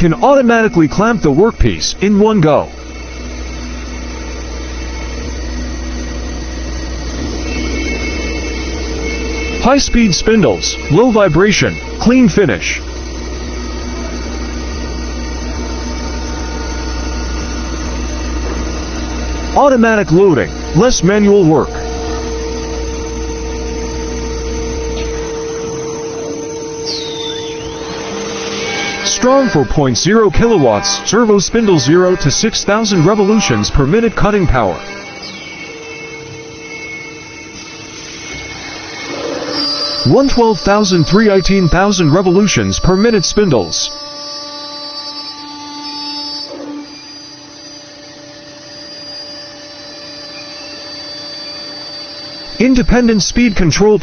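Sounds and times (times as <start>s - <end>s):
wood-turning lathe whine: 0.0s - 54.0s
low rumble: 12.8s - 20.8s
short falling whistle: 26.2s - 29.1s, 35.2s - 40.2s.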